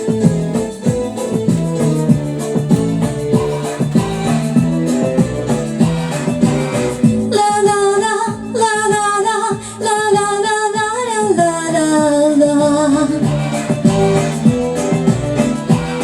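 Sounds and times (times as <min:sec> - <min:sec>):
pop backing track with steady beat: 0:00.0 - 0:16.0
woman singing wordless melody: 0:03.2 - 0:16.0.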